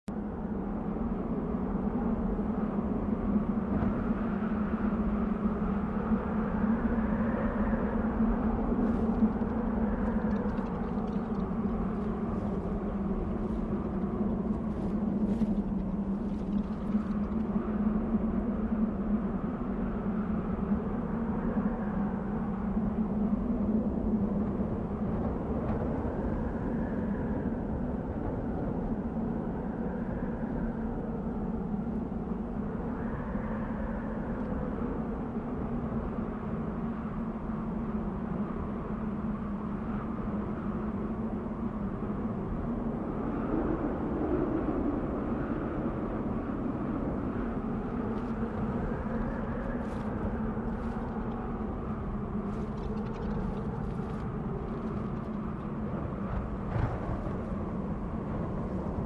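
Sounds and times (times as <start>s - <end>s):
wind blowing steadily: 0.0s - 59.0s.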